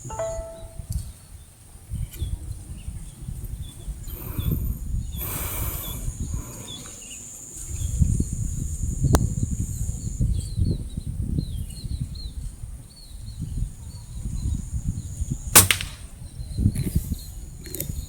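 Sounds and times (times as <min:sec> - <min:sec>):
small birds chirping: 0:03.6 - 0:08.1.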